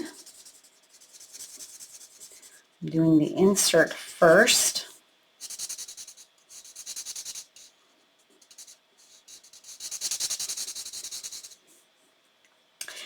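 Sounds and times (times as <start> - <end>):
marker scratching on card: 0.0 - 2.3, 5.4 - 7.7, 8.4 - 11.6.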